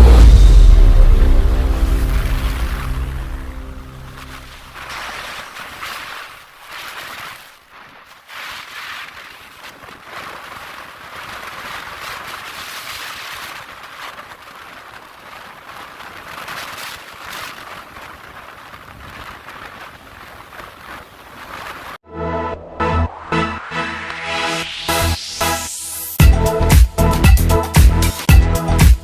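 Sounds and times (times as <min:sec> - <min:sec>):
wind rushing over microphone: 0:09.4 - 0:22.0.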